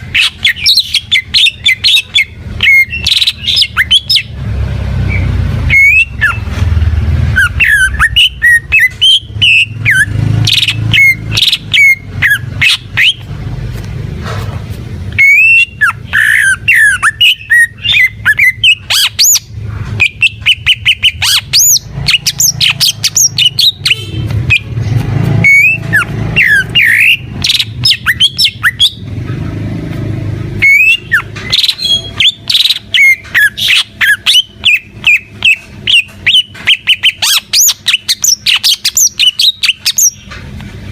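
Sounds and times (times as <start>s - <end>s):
bird singing varied whistles: 5.1s - 6.5s, 7.4s - 13.2s, 15.2s - 24.7s, 25.4s - 29.0s, 30.6s - 40.3s.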